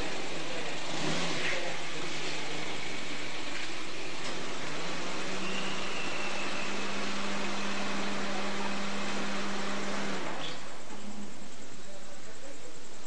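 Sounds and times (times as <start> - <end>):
small car engine running: 0.0 - 13.0
steady low hum: 7.5 - 13.0.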